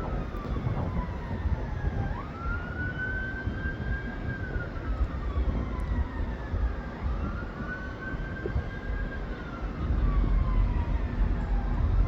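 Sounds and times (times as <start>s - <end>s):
emergency vehicle siren wailing: 0.0s - 12.0s
steady low rumble: 4.9s - 12.0s.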